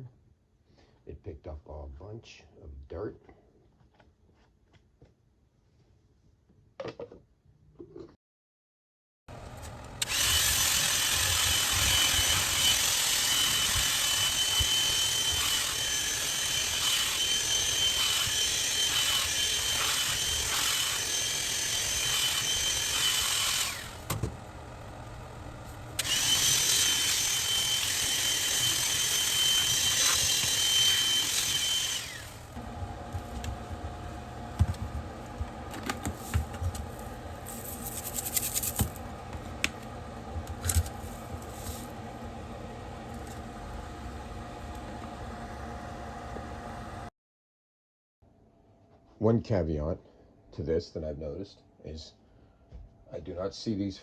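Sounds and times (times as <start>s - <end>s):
hand vacuum whining: 9.4s - 39.8s.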